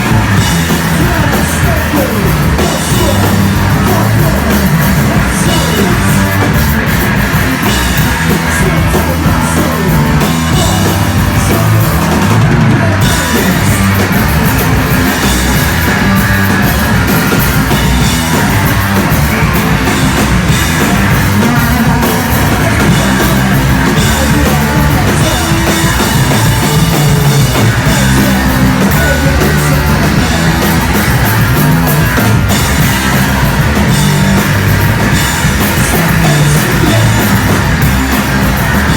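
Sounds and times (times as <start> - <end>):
pounding drum kit: 0.0 - 38.9
punk rock music: 0.0 - 38.9.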